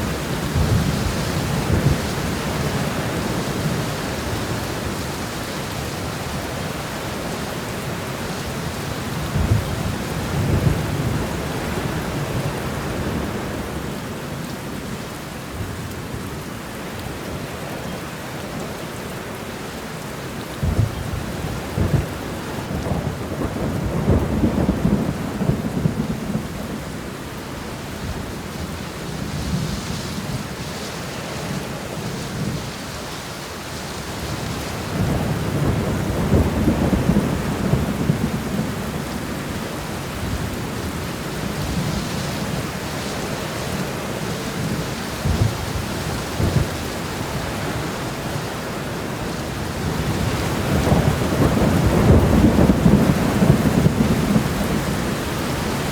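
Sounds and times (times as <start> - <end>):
thunder rumbling: 0.0 - 5.0, 20.6 - 27.1, 34.1 - 55.9
steady rain: 0.0 - 55.9.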